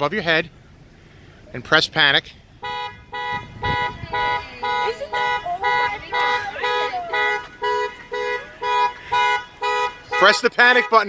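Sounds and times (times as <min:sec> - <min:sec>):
car horn honking: 0:02.6 - 0:11.0.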